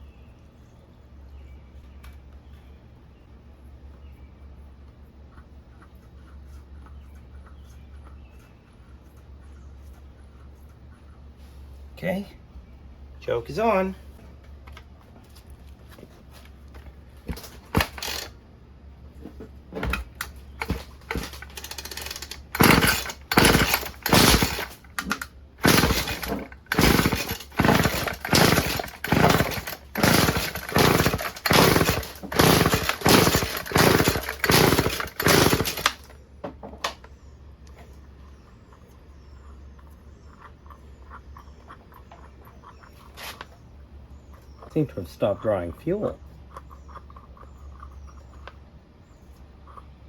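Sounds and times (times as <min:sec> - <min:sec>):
string trimmer recoil starter pulls: 0:17.3 - 0:18.4, 0:19.8 - 0:36.2.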